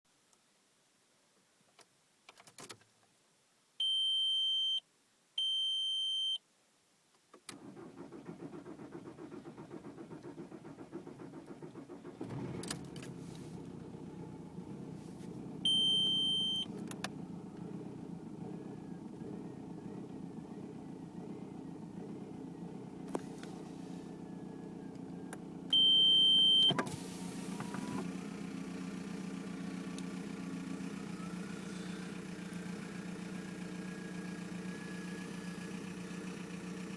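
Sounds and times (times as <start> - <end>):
diesel engine starting and idling: 7.5 - 36.9.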